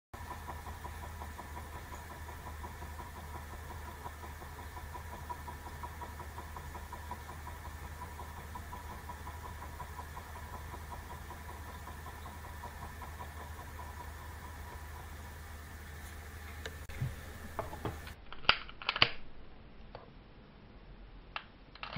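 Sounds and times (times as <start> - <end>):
model engines ticking: 0.2 - 15.9.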